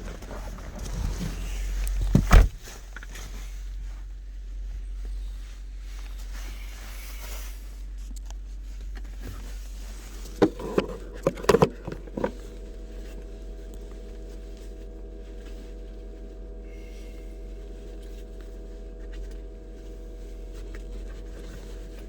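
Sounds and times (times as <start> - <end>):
low engine rumble: 0.0 - 22.0
steady multi-tone hum: 8.5 - 22.0.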